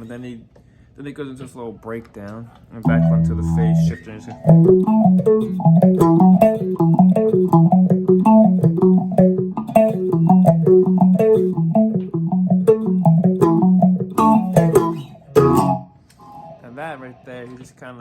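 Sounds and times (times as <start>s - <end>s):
electric guitar picked riff: 2.9s - 16.6s.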